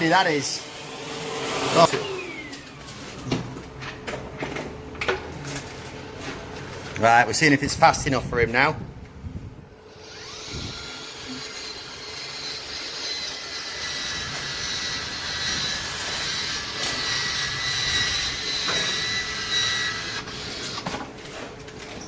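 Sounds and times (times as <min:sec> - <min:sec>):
power tool motor whining: 0:00.6 - 0:03.5, 0:09.9 - 0:21.4.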